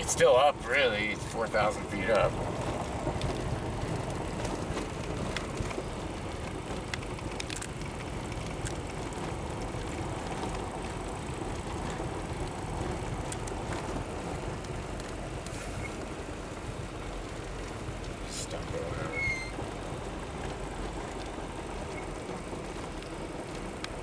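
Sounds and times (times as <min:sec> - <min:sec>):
car road rumble: 0:00.0 - 0:24.0.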